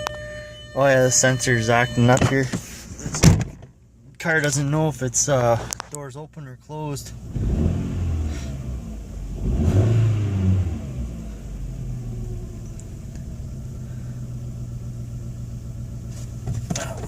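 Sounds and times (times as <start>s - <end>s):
car engine revving and idling: 7.0s - 17.0s.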